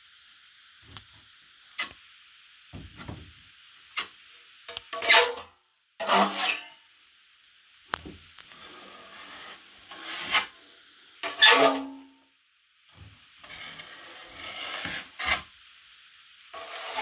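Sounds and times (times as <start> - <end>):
drywall knife scraping: 4.9 - 5.4, 6.0 - 6.8, 8.5 - 10.6, 11.2 - 12.0, 13.4 - 15.5, 16.6 - 17.0.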